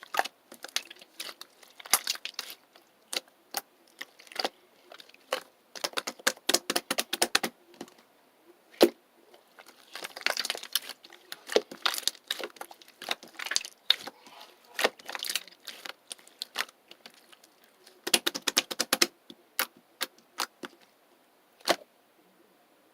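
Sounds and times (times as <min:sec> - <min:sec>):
rapid sharp clicks and taps: 0:05.3 - 0:08.0, 0:18.0 - 0:20.8.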